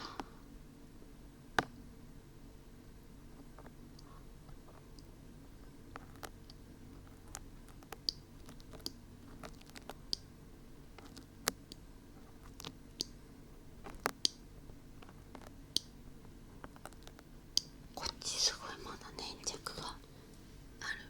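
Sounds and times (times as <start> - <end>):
dried glue peeling with clicks: 5.9 - 10.3.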